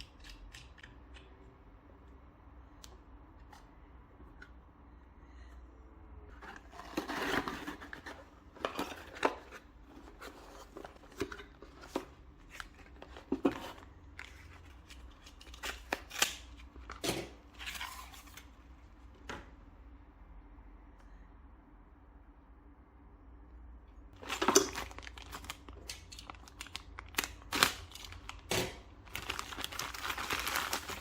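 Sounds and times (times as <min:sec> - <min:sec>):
plastic and cardboard rustling: 0:06.3 - 0:18.6, 0:24.2 - 0:31.0.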